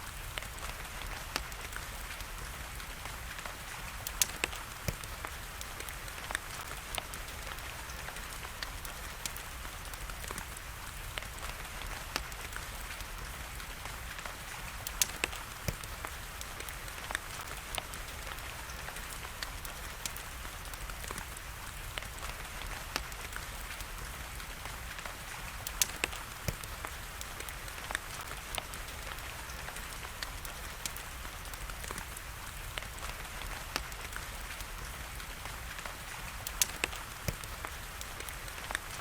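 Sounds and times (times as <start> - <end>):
rain hiss: 0.0 - 39.0
wood fire crackling: 0.0 - 39.0
sharp fire pops: 24.7 - 38.8.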